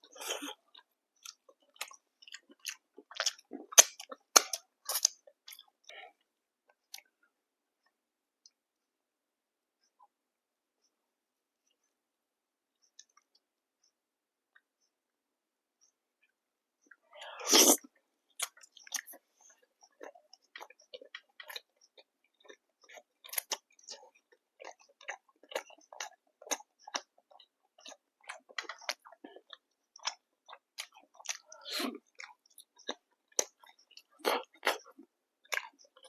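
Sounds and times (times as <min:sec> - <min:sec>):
person chewing food: 0:00.0 - 0:07.1, 0:16.2 - 0:36.0.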